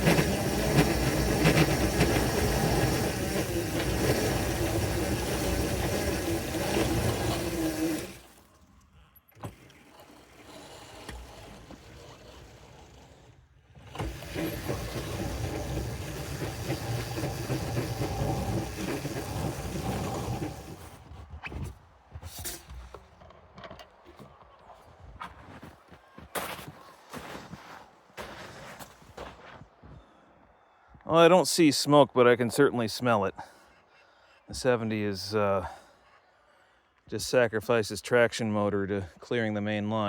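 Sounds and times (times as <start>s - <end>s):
locomotive traction motors whining: 0.0s - 21.0s.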